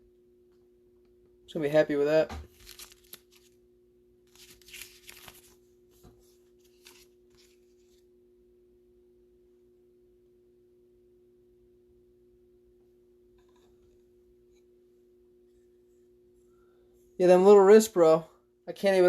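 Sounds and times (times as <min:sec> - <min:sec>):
faint steady hum: 0:00.0 - 0:19.0
card sleeves rustling: 0:02.5 - 0:03.6, 0:04.3 - 0:08.0.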